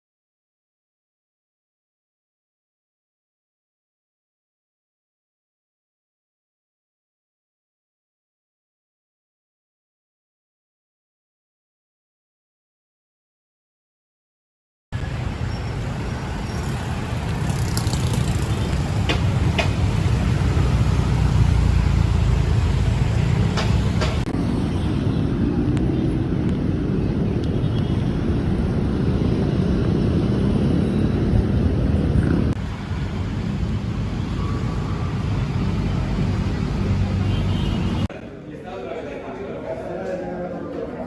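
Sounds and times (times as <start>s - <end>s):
road traffic rumble: 15.0s - 41.0s.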